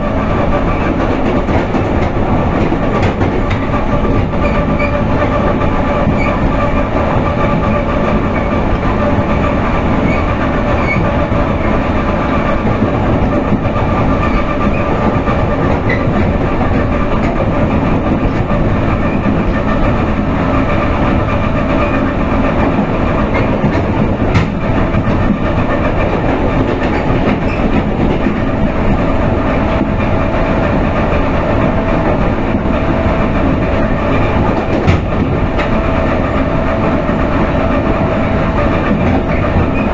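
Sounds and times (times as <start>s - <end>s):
train wheels rumbling on track: 0.0s - 39.9s.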